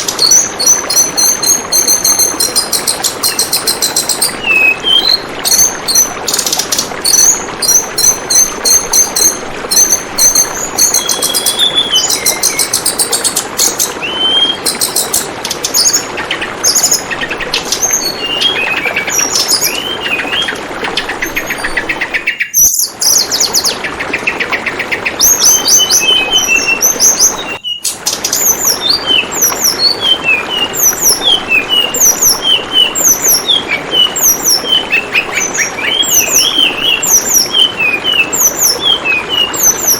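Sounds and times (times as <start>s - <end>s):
bird singing high chirps: 0.0s - 39.9s
flowing water babbling: 0.0s - 39.9s.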